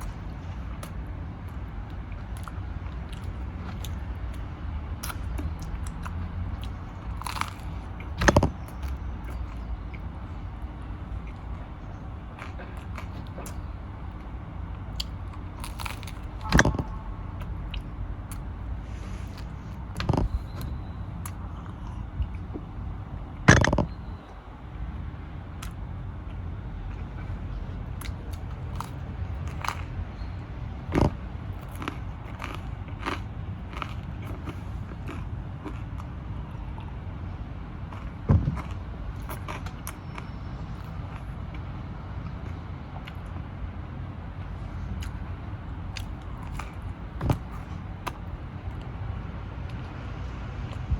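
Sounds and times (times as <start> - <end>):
low rumble: 0.0 - 35.0
person biting and chewing: 2.2 - 4.4, 5.0 - 10.1, 14.9 - 22.5, 28.0 - 30.0, 30.9 - 36.1, 37.9 - 41.3, 46.0 - 48.9.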